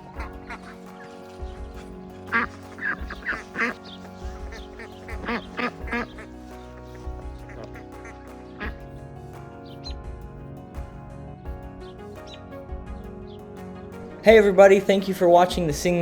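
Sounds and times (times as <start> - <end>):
young ducks quacking: 0.0 - 10.0
background music: 0.0 - 16.0.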